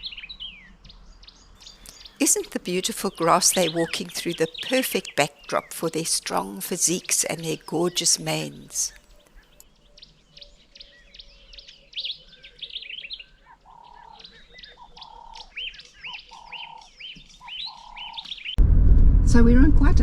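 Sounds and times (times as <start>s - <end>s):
lower bird call: 8.9s - 18.6s
quick arching bird chirps: 8.9s - 18.6s
loud noise: 18.6s - 20.0s.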